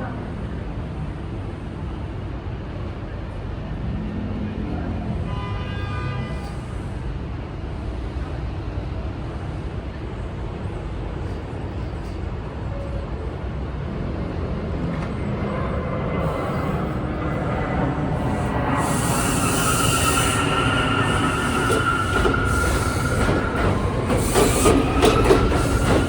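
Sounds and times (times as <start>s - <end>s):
subway train rumbling: 0.0s - 26.0s
wheel squeal: 18.3s - 26.0s.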